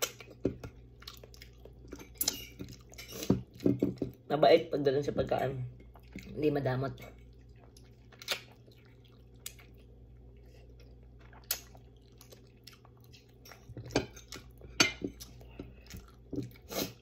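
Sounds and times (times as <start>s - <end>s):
person chewing food: 0.0s - 4.2s, 5.7s - 6.4s, 7.0s - 17.0s
lip smacks and clicks: 8.2s - 8.6s, 11.3s - 12.9s.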